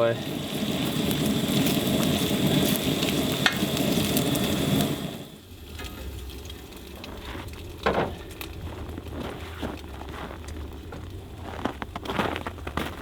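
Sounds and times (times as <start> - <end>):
eggs sizzling in a pan: 0.0 - 9.9.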